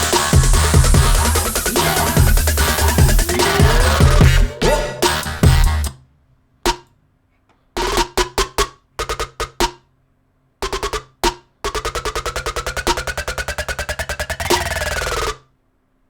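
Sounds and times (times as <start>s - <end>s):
heavy electronic bass: 0.0s - 5.9s
rapid drum roll: 0.0s - 5.9s
rising pitch synth build: 0.0s - 5.9s
stuttering drum hits: 0.0s - 5.9s.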